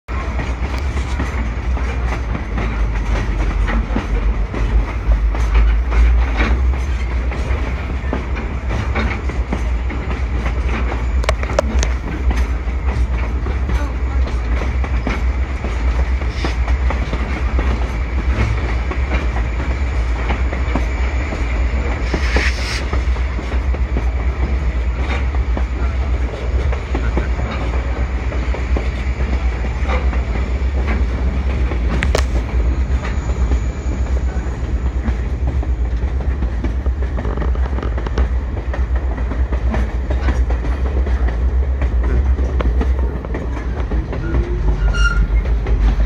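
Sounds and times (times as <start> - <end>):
train cars rumbling: 0.1 - 46.0
wheels clicking over rail joints: 0.2 - 21.0, 34.9 - 46.0.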